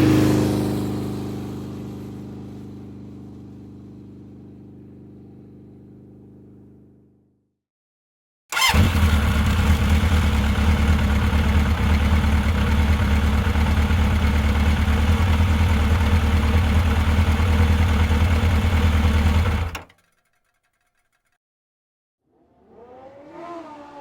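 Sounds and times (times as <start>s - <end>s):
vehicle engine idling: 8.6s - 19.8s.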